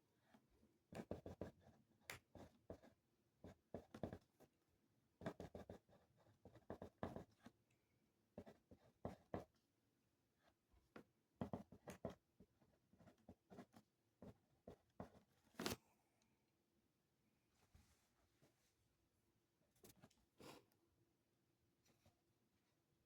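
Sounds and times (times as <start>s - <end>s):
pen scratching on paper: 0.9s - 4.2s, 5.2s - 7.4s, 8.4s - 9.5s, 11.4s - 15.3s.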